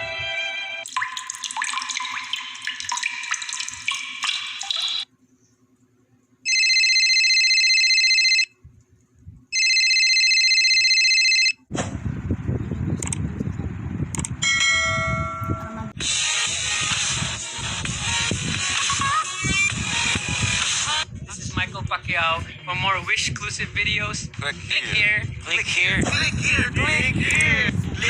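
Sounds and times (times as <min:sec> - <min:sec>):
electronic ringing: 0:06.5 - 0:08.5, 0:09.5 - 0:11.7
noisy rumble: 0:11.7 - 0:14.5, 0:15.6 - 0:28.0.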